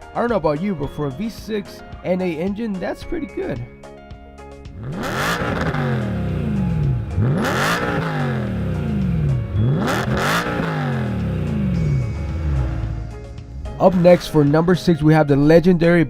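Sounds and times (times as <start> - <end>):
car engine free-revving: 4.7 - 14.9.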